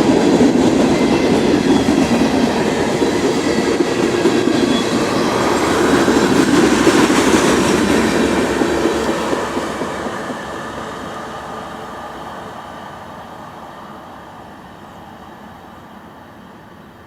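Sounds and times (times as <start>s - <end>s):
train cars rumbling and rattling: 0.0s - 17.0s.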